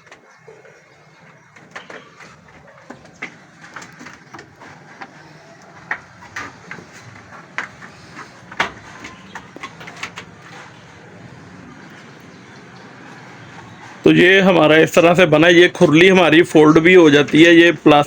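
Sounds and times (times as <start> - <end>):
hooves tapping on slatted floor: 0.0 - 14.1.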